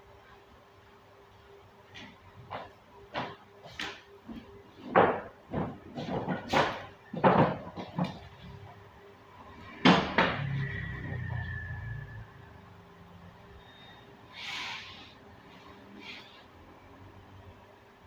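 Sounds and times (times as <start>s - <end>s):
knocks and bangs: 4.8s - 8.3s, 9.7s - 10.8s.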